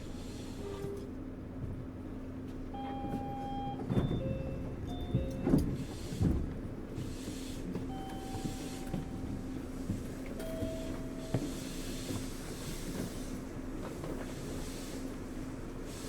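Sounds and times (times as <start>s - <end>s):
train interior hum: 0.0s - 16.0s.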